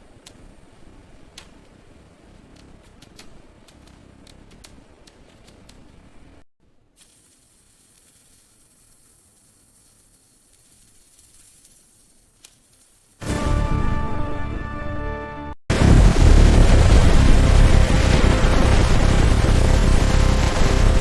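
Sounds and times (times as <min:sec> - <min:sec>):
faint steady hiss: 0:00.0 - 0:13.2
music: 0:13.2 - 0:15.6
factory machine rumble: 0:15.7 - 0:21.0.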